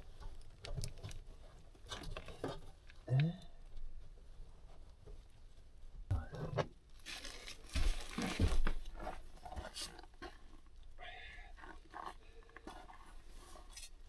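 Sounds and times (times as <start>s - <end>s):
rustling: 6.8s - 10.8s.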